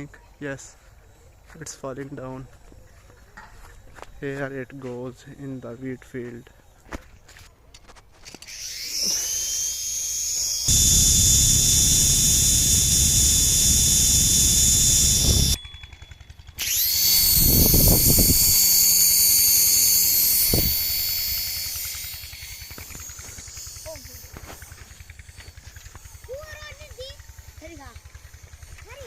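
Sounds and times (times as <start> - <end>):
toy helicopter motor whine: 8.3 - 29.0.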